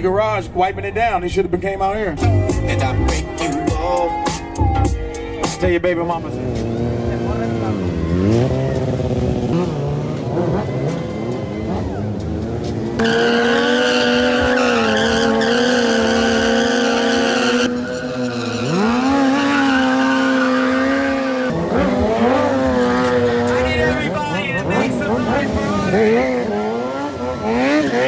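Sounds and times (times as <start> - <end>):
vehicle engine revving: 2.2 - 28.0
tyres squealing: 13.0 - 28.0.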